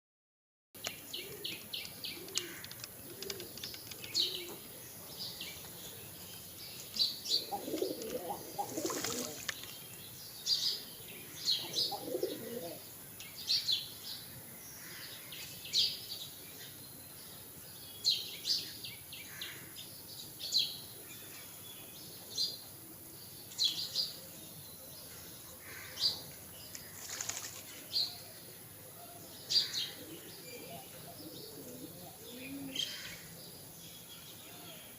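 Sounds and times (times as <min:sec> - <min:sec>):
pigeons flapping wings: 0:07.9 - 0:09.6, 0:27.0 - 0:27.8.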